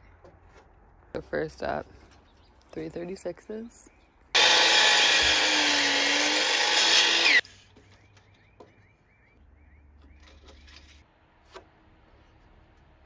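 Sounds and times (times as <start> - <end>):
power saw cutting lumber: 4.4 - 7.4.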